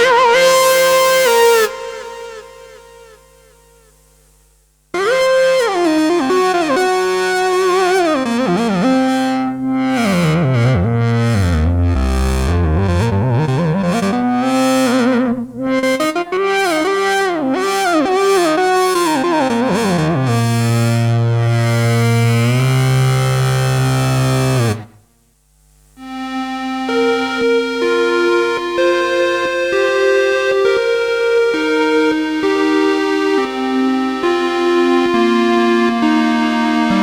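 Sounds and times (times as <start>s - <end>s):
synthesizer gliding melody: 0.0s - 3.2s, 26.0s - 37.0s.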